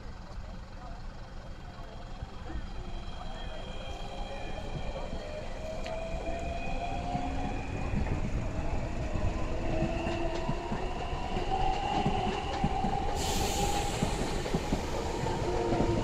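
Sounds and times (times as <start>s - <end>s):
train wheels rumbling on rails: 0.2s - 16.0s
hiss: 13.0s - 15.0s.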